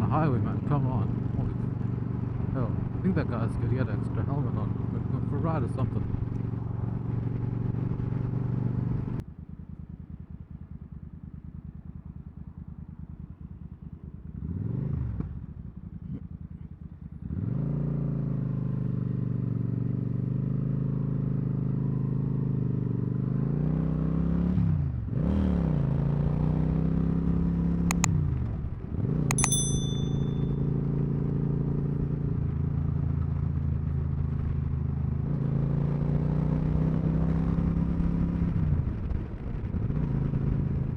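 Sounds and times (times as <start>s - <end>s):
sharp clicks: 29.3s - 30.4s.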